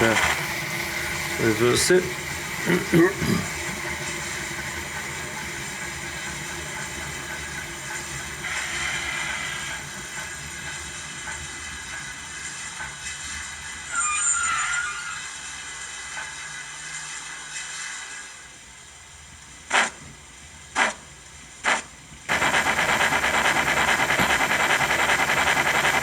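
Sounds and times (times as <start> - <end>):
model steam locomotive sounds: 0.0 - 26.0.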